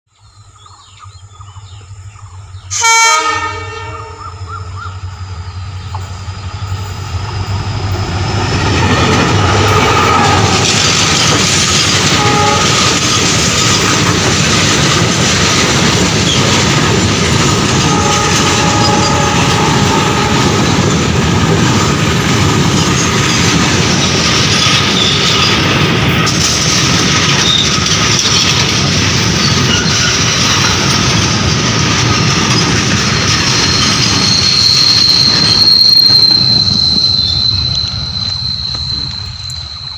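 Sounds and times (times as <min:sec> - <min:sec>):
freight train wheels rumbling: 0:00.3 - 0:39.9
high wheel squeal: 0:08.0 - 0:14.0, 0:17.8 - 0:20.9, 0:23.9 - 0:25.8, 0:27.3 - 0:28.7, 0:29.3 - 0:31.0, 0:32.5 - 0:39.9.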